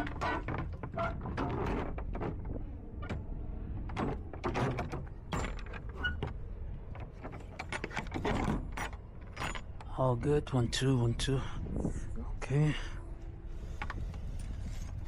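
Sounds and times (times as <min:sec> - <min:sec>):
metal doors clanking shut: 0:03.9 - 0:06.4.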